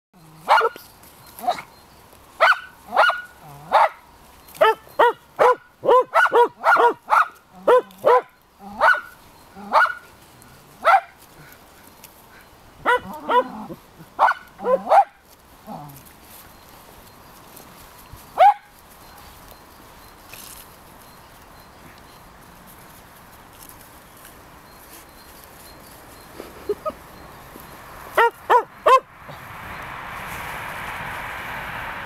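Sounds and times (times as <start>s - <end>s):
puppies yapping: 2.4s - 16.5s, 17.4s - 20.0s, 24.7s - 29.4s.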